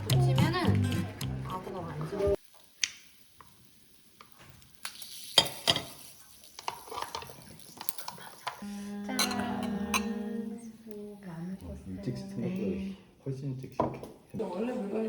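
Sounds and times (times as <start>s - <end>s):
meat sizzling on a grill: 2.4s - 9.4s
cutlery and dishes clinking: 4.9s - 10.2s.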